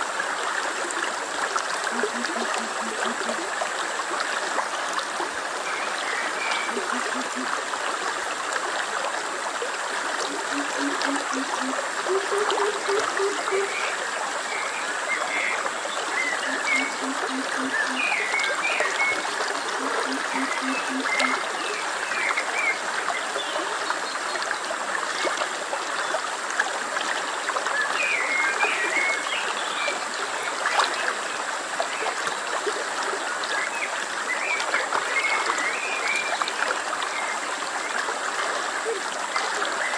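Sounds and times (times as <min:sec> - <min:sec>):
stream running: 0:00.0 - 0:39.9
low rapid pulsed calls: 0:01.9 - 0:03.5, 0:06.5 - 0:07.5, 0:10.2 - 0:13.8, 0:16.3 - 0:18.2, 0:19.7 - 0:21.4.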